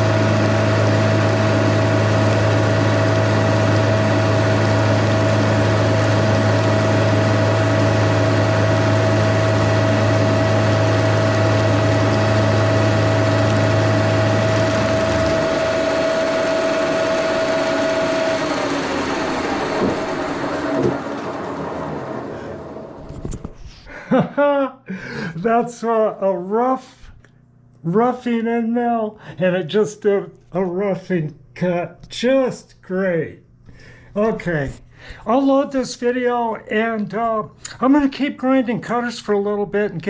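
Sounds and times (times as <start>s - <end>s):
machine winding down: 0.0s - 23.4s
milling machine spindle running: 0.0s - 23.4s
deep hum: 0.0s - 23.8s
knocks: 19.8s - 21.1s.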